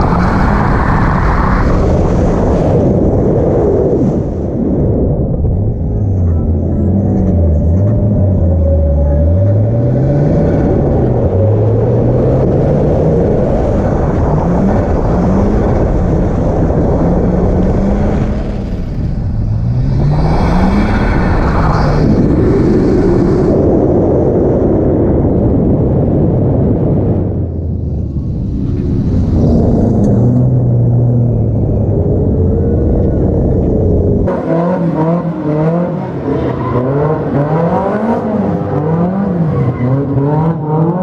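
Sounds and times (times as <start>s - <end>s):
wind and tyre rumble: 0.0s - 41.0s
car engine revving: 6.0s - 23.5s, 27.8s - 41.0s.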